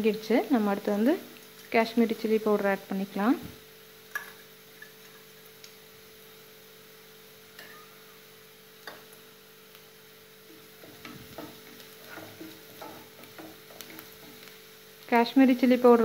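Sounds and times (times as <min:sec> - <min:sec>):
onions sizzling in oil: 0:00.0 - 0:16.0
steady hum: 0:00.0 - 0:16.0
spatula scraping a pan: 0:10.5 - 0:14.5.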